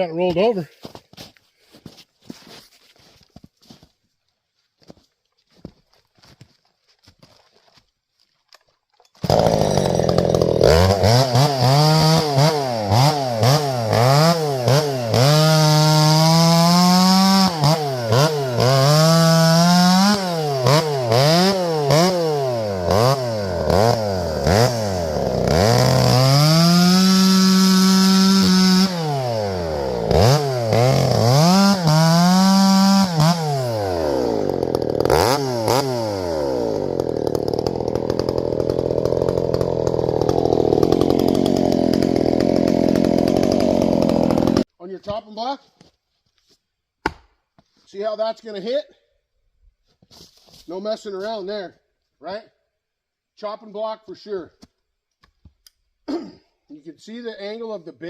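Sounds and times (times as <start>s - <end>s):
chainsaw revving: 9.2s - 44.7s.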